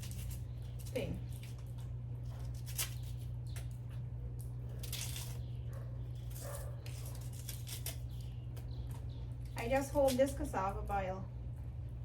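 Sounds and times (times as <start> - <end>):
knife scraping: 0.0 - 3.8, 4.4 - 8.4
steady low hum: 0.0 - 12.0.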